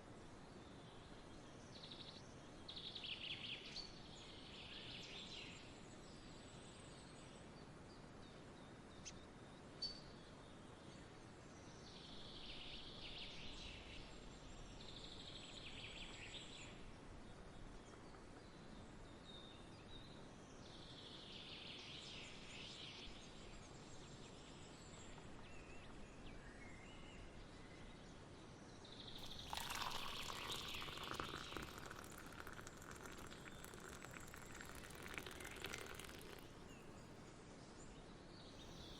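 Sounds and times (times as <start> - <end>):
birds chirping: 29.2 - 36.9.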